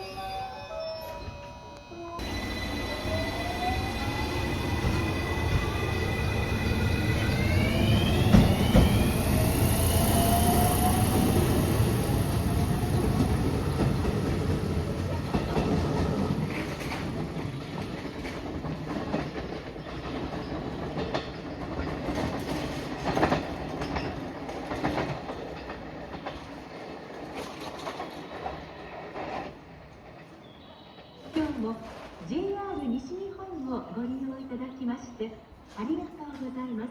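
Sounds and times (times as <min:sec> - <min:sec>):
train rumble: 0:01.2 - 0:30.4
train motor whine: 0:02.2 - 0:15.4
wheels clacking over rail joints: 0:02.2 - 0:30.3.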